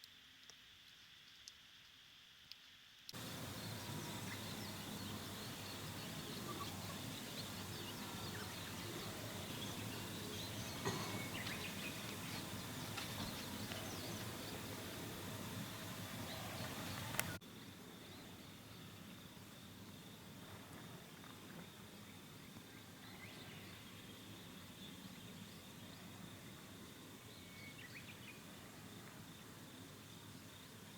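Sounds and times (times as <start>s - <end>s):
background hiss: 0.0s - 30.9s
faint high insect tone: 0.0s - 30.9s
insect and bird chirps: 0.0s - 30.9s.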